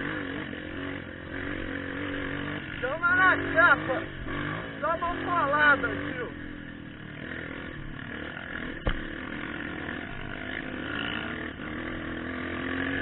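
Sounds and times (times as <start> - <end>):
motorcycle engine running: 0.0 - 13.0
sharp knock: 8.8 - 9.1.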